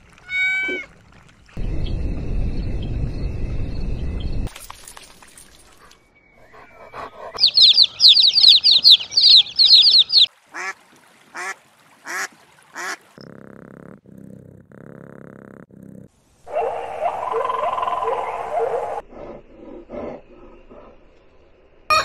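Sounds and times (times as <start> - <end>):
high falling chirps: 7.4 - 10.3.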